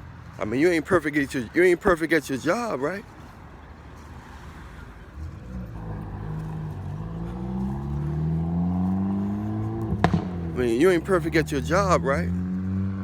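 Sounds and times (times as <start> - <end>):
car engine accelerating: 4.2 - 13.0.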